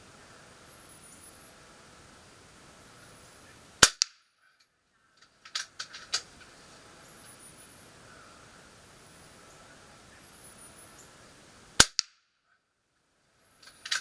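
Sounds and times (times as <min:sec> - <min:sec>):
air rifle shot crack: 0:03.8 - 0:04.3, 0:11.8 - 0:12.2
quick clicks: 0:05.4 - 0:06.5, 0:13.6 - 0:14.0.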